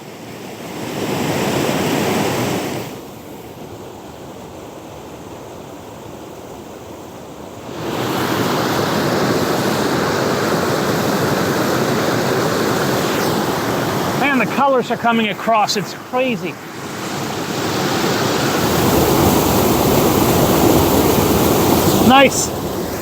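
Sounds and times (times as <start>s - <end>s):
waterfall rushing: 7.6s - 23.0s.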